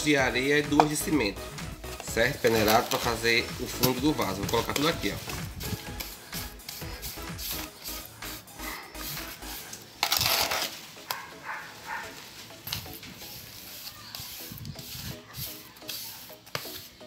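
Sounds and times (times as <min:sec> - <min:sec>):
trowel scraping wet mortar: 0:02.2 - 0:08.0, 0:09.5 - 0:10.8, 0:13.4 - 0:17.0.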